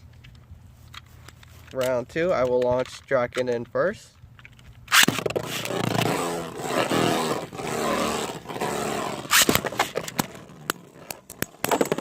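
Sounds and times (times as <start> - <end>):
sharp clicks of impact: 4.4 - 12.0
spinning tops whirring: 4.9 - 12.0.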